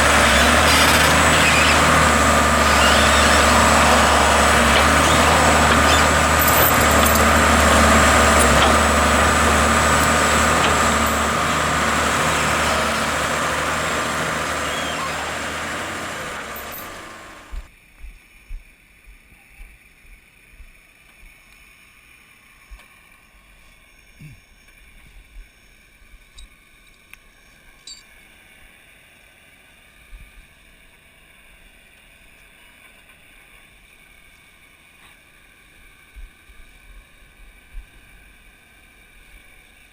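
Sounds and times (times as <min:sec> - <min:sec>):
heavy machinery humming and whining: 0:00.0 - 0:17.7.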